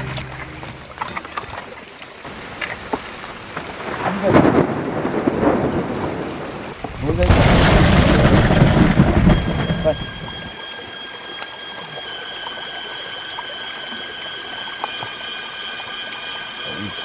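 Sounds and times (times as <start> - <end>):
thunder rumble: 3.4 - 10.5.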